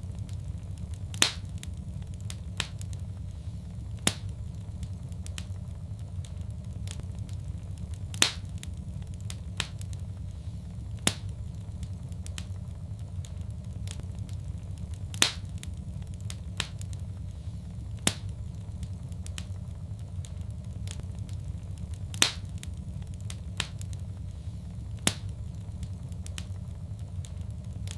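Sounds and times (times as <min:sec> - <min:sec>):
low rumble of burning: 0:00.0 - 0:27.9
wood fire crackling and popping: 0:00.0 - 0:27.9.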